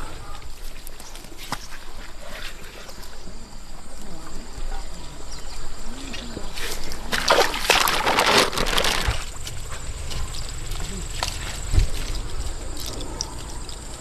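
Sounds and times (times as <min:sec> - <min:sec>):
water trickling and splashing: 0:05.4 - 0:14.0.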